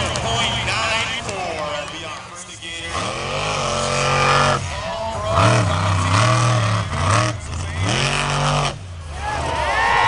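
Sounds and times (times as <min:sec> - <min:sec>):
monster truck engine revving: 0:02.7 - 0:10.0.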